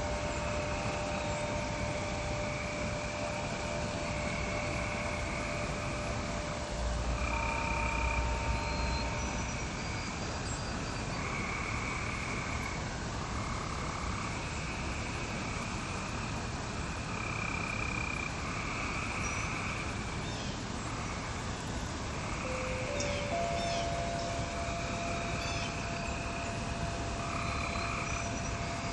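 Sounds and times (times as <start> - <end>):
frogs trilling: 0.0 - 28.9
steady hiss: 0.0 - 28.9
wind chime tones: 22.4 - 28.9.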